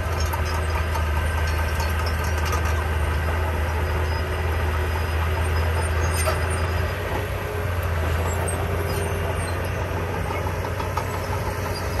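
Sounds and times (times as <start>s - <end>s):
heavy diesel engine droning: 0.0s - 12.0s.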